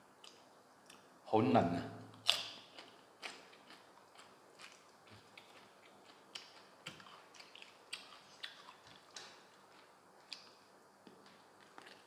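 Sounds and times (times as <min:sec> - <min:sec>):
mouth chewing sounds: 0:02.2 - 0:10.6.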